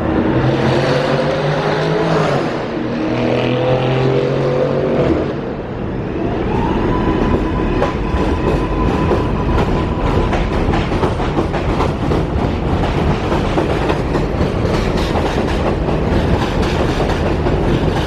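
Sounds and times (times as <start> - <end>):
wheels clicking over rail joints: 7.8 - 18.0.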